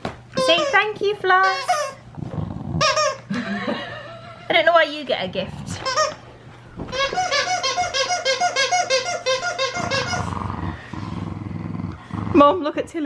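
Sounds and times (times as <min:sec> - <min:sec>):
squeaky dog toy squeaking: 0:00.4 - 0:02.1, 0:02.8 - 0:03.3, 0:05.8 - 0:06.2, 0:06.9 - 0:10.3.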